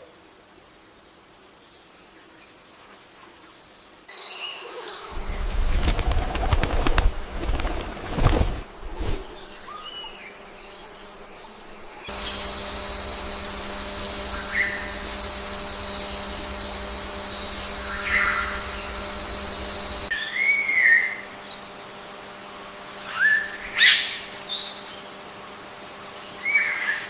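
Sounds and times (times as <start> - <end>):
bird wings flapping: 5.1 - 20.1
steady hum with high whine: 5.1 - 26.8.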